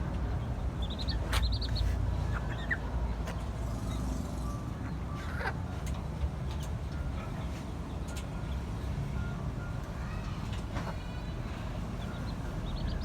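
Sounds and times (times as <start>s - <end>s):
chicken calls and peeps: 0.4s - 5.8s.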